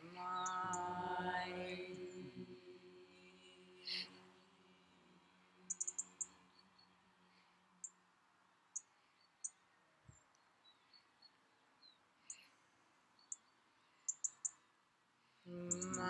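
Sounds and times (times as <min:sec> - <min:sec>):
low hummed chant: 0:00.0 - 0:05.7, 0:15.5 - 0:16.0
small birds chirping: 0:00.0 - 0:16.0.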